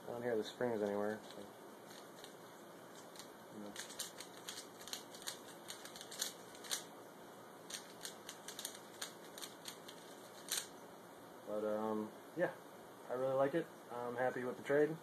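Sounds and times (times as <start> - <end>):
puzzle cube layers clicking: 3.0 - 6.9, 7.7 - 10.7
puzzle cube snaps: 3.0 - 6.9, 7.7 - 10.7.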